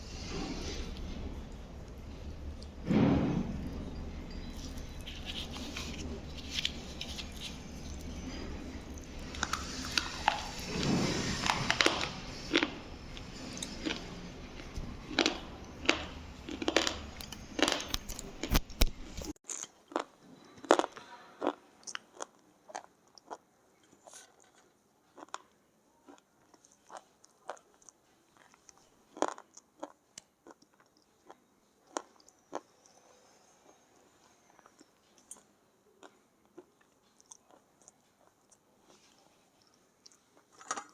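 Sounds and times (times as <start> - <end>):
steady background hum: 0.0 - 19.4
slate pencil being chewed: 4.4 - 20.1.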